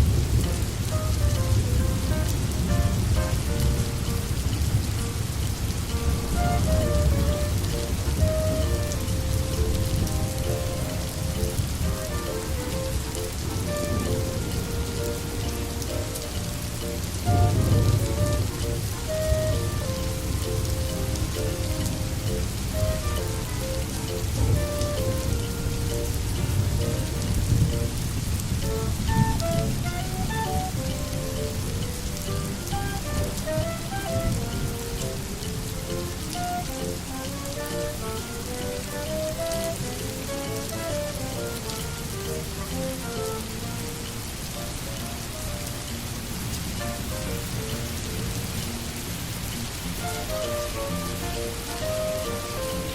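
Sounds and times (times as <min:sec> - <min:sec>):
soft pitched notes: 0:00.0 - 0:45.6
soft slow music: 0:00.0 - 0:52.9
steady rain falling: 0:00.0 - 0:52.9.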